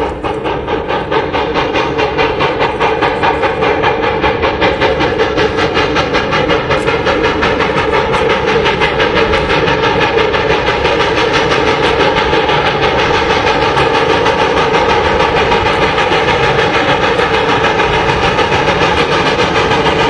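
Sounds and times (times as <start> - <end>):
steam train running: 0.0 - 20.0.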